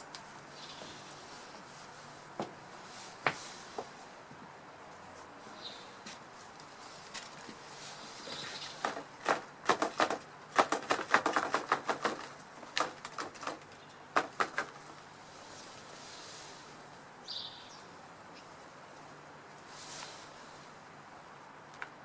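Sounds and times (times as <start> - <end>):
bird wings flapping: 8.6 - 14.8.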